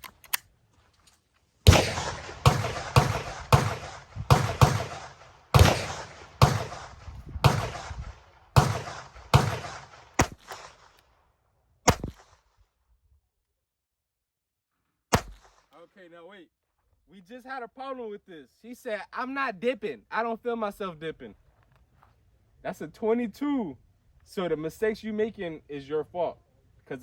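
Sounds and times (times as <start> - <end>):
pistol shots: 1.7 - 11.0, 11.9 - 12.4, 15.1 - 15.7.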